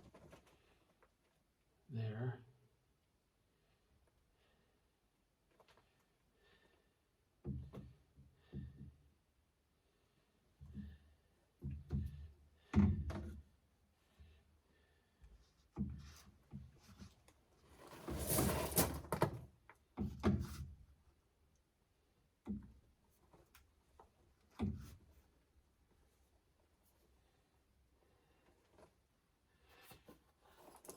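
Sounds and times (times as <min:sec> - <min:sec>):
rasping scrape: 0:17.7 - 0:19.1.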